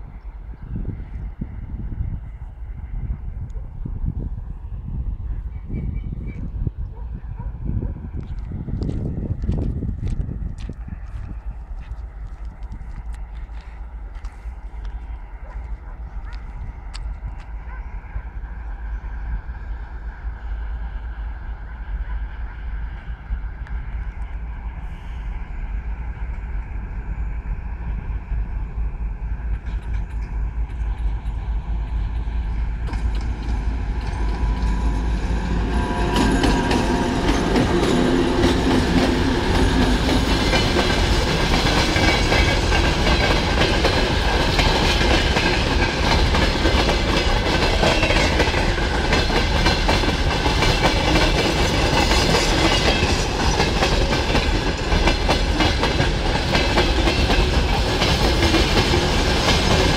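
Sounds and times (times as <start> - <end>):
diesel locomotive engine: 0.0 - 59.9
train wheels clacking on rails: 29.4 - 59.9.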